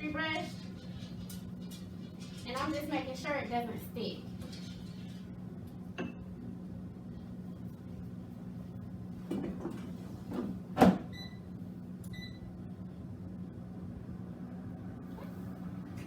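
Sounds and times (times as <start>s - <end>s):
steady low hum: 0.0s - 16.0s
air fryer drawer clunking shut: 10.8s - 11.1s.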